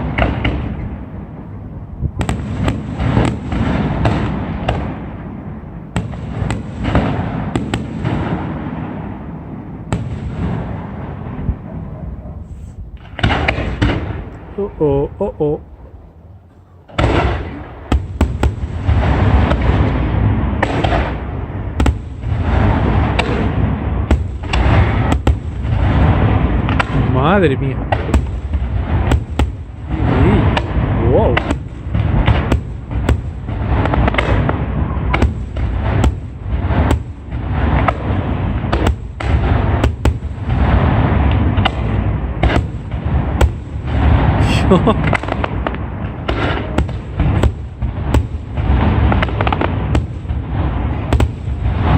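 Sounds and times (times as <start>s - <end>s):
heavy low rumble: 0.0s - 2.3s, 10.7s - 17.9s
sharp fireworks bangs: 0.0s - 16.0s, 16.8s - 51.9s
fireworks booming and crackling: 0.0s - 51.9s.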